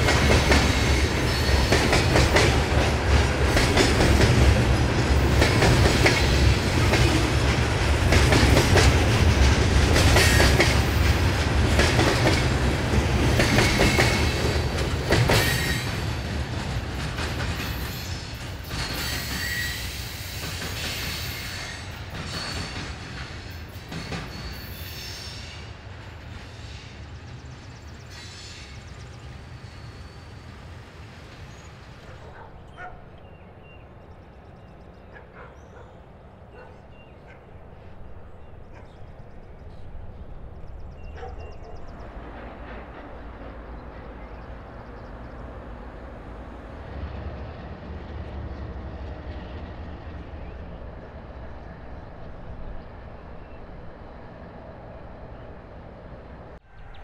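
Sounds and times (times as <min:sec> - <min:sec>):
train wheel clatter: 0:00.0 - 0:26.9
high wheel squeal: 0:17.7 - 0:22.9, 0:23.6 - 0:25.7, 0:29.5 - 0:30.6.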